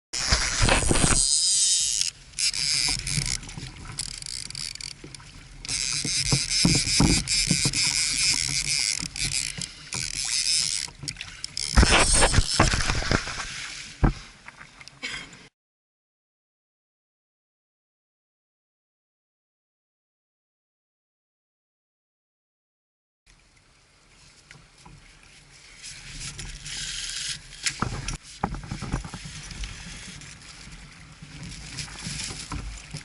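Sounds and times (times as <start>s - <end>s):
water sloshing around kayak: 0.2s - 15.5s, 23.6s - 33.0s.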